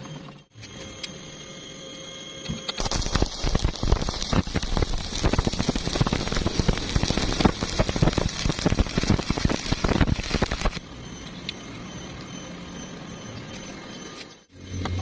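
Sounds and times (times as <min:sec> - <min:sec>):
welding arc crackling: 0:02.7 - 0:10.9.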